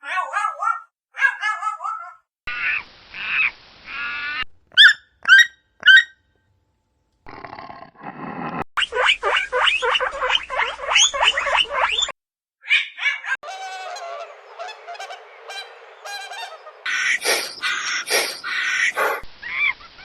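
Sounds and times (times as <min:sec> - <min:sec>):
pitched animal calls: 0:02.6 - 0:06.1, 0:08.9 - 0:20.0
chorus of rapid animal calls: 0:08.9 - 0:20.0
short sharp animal calls: 0:16.9 - 0:19.8.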